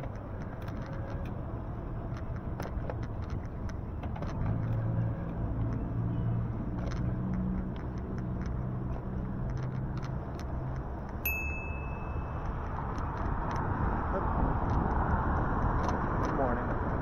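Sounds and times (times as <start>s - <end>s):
car engine humming: 0.0s - 17.0s
road rumble: 0.0s - 17.0s
high-pitched ding: 11.3s - 12.4s.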